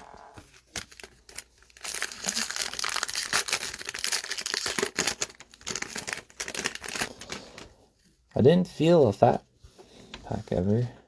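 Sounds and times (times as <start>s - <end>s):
foil wrapper tearing and crackling: 0.5s - 7.4s.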